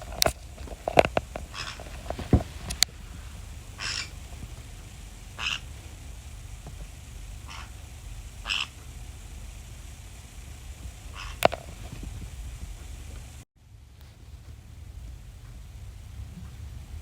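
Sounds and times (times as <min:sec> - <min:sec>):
parrot calling: 0:00.0 - 0:13.3.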